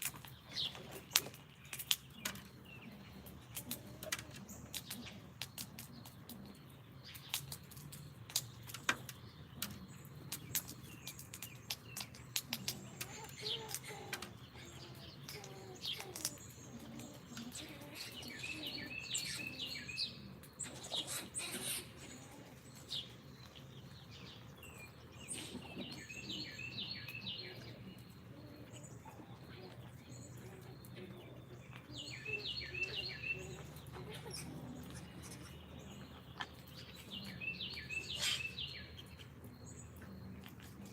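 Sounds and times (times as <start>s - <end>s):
songbirds whistling: 0.4s - 40.9s.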